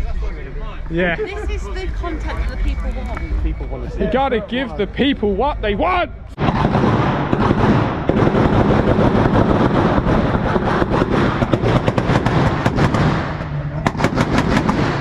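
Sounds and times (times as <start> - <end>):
exhaust crackling pops and bangs: 6.3 - 15.0.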